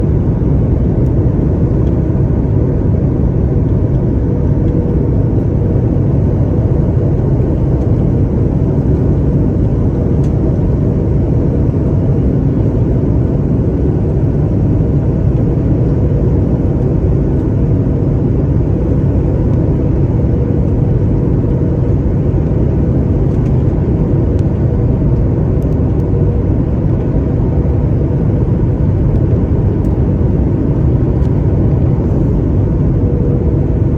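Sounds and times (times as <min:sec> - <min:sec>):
airliner engines rumbling: 0:00.0 - 0:33.9.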